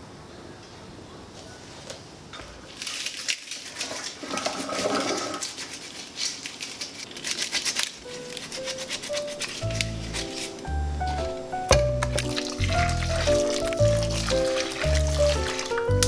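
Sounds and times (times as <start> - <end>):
soft background music: 8.1 - 16.0.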